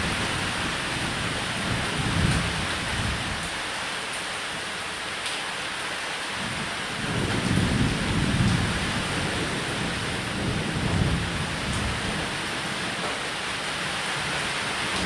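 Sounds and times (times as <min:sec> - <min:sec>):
heavy rain on a roof: 0:00.0 - 0:15.0
thunder rumbling low: 0:07.0 - 0:12.4.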